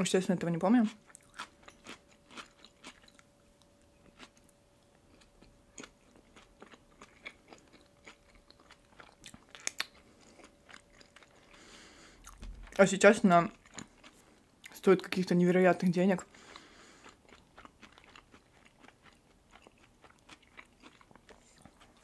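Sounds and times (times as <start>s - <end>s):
close chewing with wet mouth clicks: 5.1s - 12.8s, 16.5s - 22.0s.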